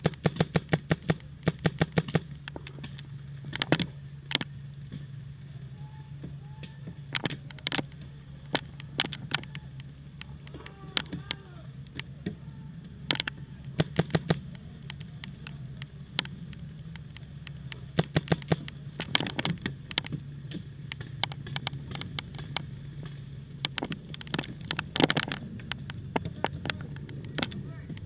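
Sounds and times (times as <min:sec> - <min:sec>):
paintball markers firing: 0:00.0 - 0:04.5, 0:13.0 - 0:28.0
steady low hum: 0:00.0 - 0:28.0.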